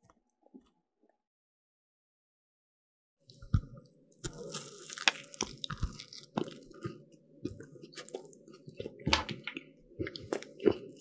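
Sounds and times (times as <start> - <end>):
crunching and chewing pastry: 3.3 - 11.0.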